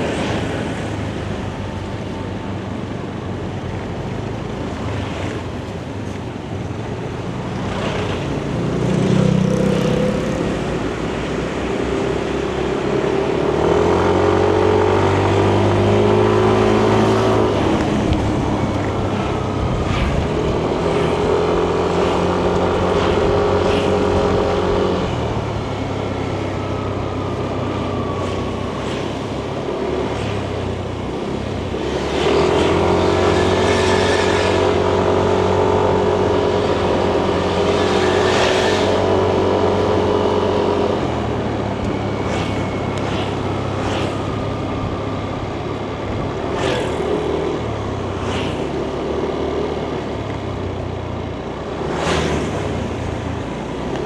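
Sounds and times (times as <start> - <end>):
scooter engine running: 13.1 - 54.0.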